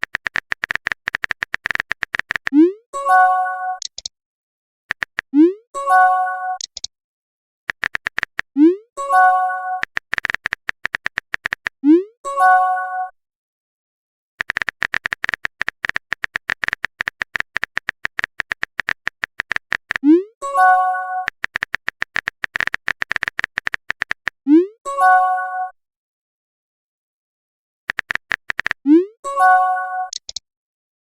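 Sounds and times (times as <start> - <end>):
phone keyboard typing clicks: 0.0 - 2.6, 3.8 - 4.1, 4.9 - 5.4, 6.6 - 6.9, 7.7 - 8.5, 9.8 - 11.8, 14.4 - 20.0, 21.2 - 24.4, 27.9 - 28.8, 30.1 - 30.4.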